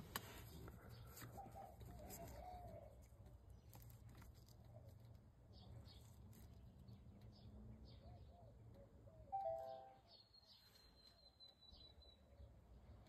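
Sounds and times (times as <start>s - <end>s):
electronic chime: 9.4s - 10.0s.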